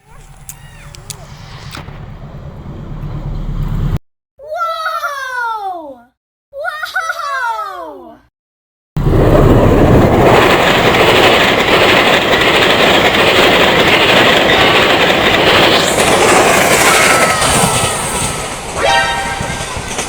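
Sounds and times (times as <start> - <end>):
train rumbling on rails: 0.0 - 4.0, 9.0 - 20.0.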